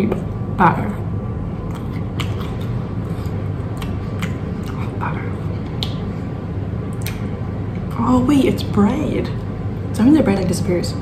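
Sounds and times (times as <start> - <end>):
low background hum: 0.0 - 11.0
person chewing: 1.6 - 6.3, 6.9 - 7.3.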